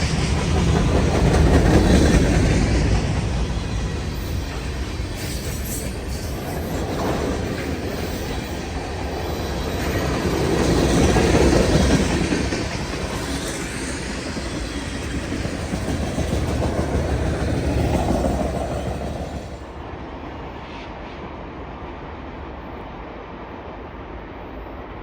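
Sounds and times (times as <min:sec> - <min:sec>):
freight train cars rolling: 0:00.0 - 0:20.3.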